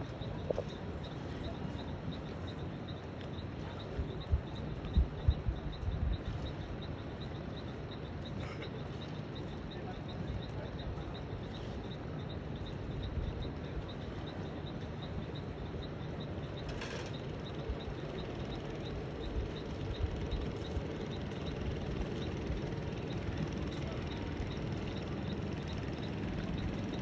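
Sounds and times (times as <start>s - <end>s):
low motor rumble: 16.4s - 27.0s.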